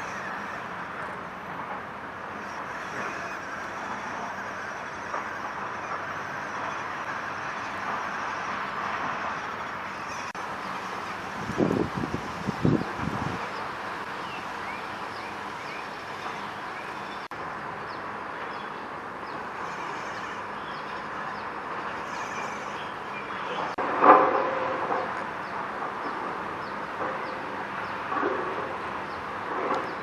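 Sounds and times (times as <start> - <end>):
steady background hum: 0.0 - 30.0
small birds chirping: 9.9 - 23.8.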